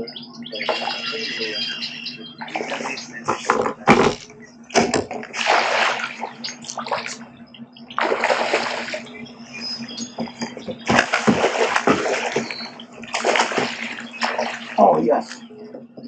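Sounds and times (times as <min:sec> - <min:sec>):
faint low hum: 0:00.0 - 0:16.0
water splashing: 0:02.4 - 0:07.3, 0:07.9 - 0:15.5.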